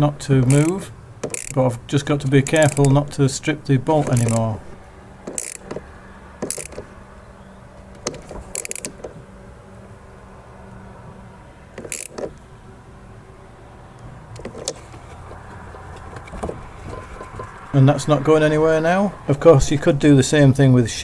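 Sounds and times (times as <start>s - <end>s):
spanner clinking on metal: 0.4s - 3.0s, 4.0s - 4.5s, 5.2s - 5.8s.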